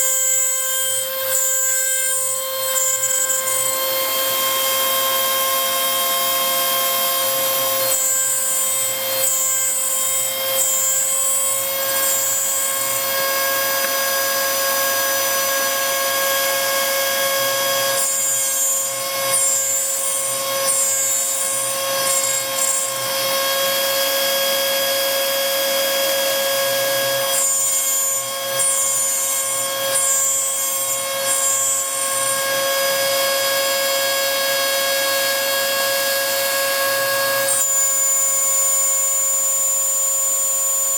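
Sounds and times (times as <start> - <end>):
router spindle cutting: 0.0 - 40.9.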